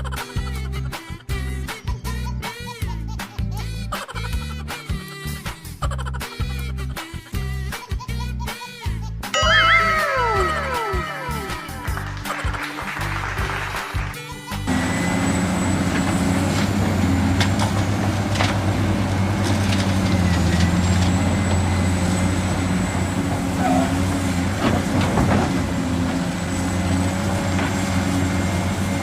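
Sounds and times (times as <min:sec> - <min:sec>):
machine engine droning: 0:14.7 - 0:24.6.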